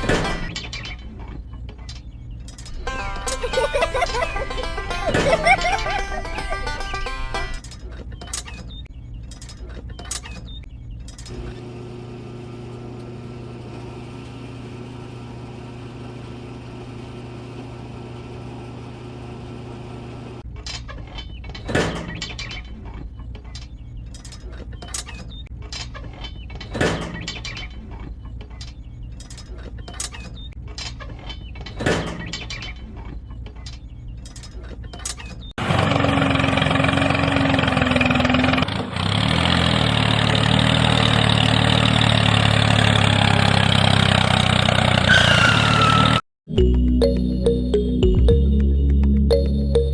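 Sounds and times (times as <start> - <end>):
loud motor running: 35.6 - 45.2.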